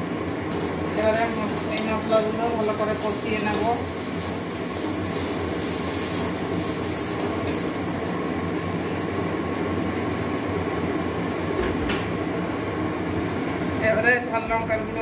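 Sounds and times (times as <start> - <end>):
paste sizzling in oil: 0.4 - 11.5.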